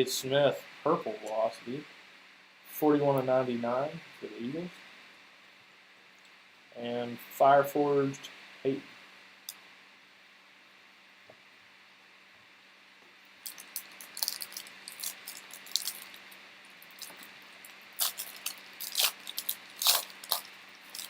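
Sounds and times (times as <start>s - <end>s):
foil wrapper crinkling: 13.4s - 21.0s.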